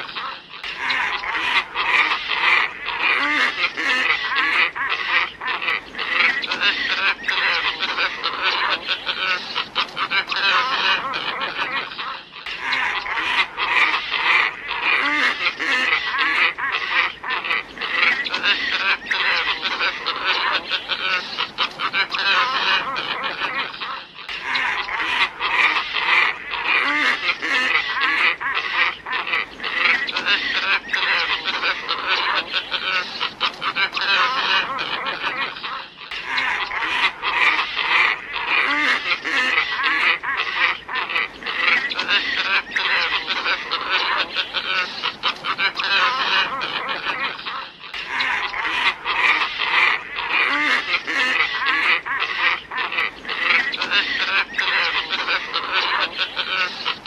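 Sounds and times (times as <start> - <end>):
ibis flock croaking: 0.0 - 57.0.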